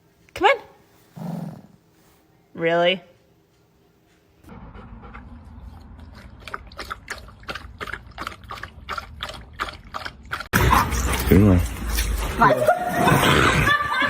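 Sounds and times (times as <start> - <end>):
dog lapping water: 5.0 - 11.3.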